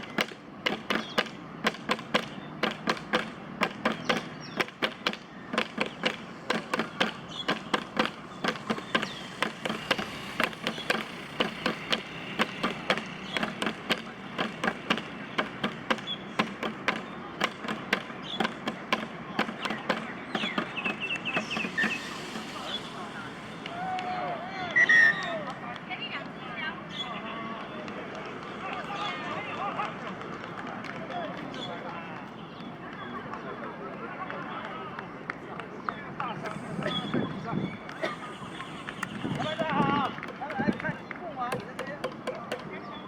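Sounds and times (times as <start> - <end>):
faint background voices: 12.1 - 43.0
small group clapping: 27.5 - 36.7.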